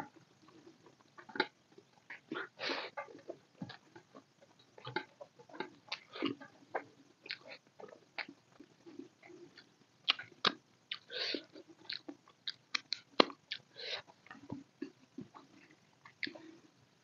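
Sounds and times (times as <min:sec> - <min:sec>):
chewing with wet lip-smacks: 0:04.9 - 0:11.1.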